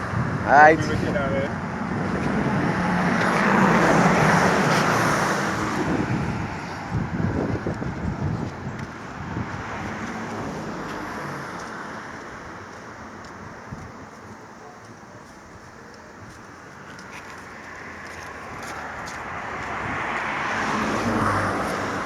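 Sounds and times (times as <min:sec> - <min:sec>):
motor vehicle passing: 0:00.0 - 0:12.1, 0:17.5 - 0:22.0.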